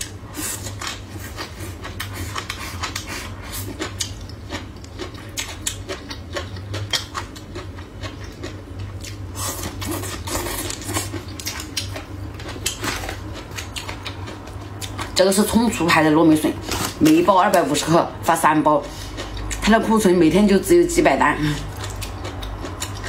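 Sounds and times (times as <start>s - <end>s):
crunchy chewing: 0.0s - 15.2s, 21.6s - 23.0s.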